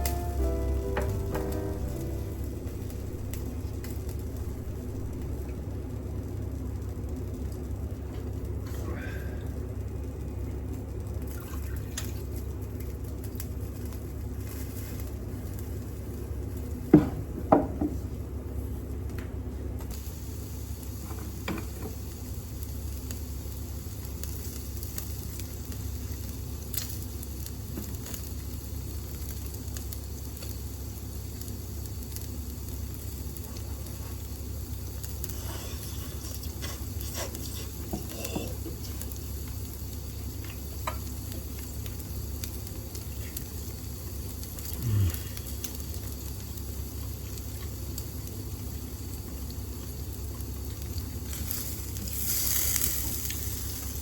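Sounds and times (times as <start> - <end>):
low sound falling in pitch: 0.0 - 6.1
meat sizzling on a grill: 0.0 - 8.7, 12.0 - 16.4, 19.8 - 54.0
range hood fan humming: 0.0 - 54.0.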